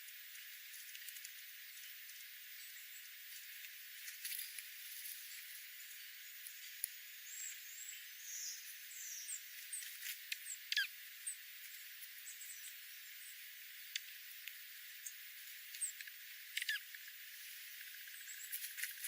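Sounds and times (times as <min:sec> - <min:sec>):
steady hiss: 0:00.0 - 0:19.0
small birds chirping: 0:00.3 - 0:19.0.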